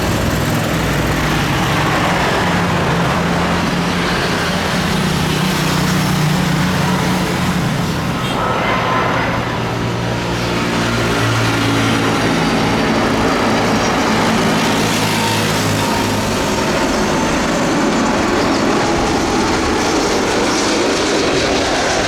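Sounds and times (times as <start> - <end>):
loud steady engine drone: 0.0 - 22.0.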